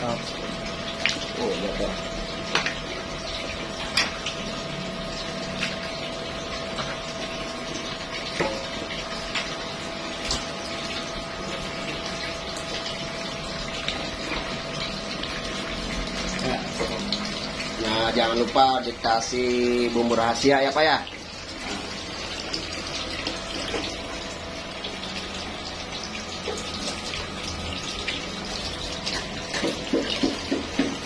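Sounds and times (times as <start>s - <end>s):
curry bubbling and hissing: 0.0s - 31.0s.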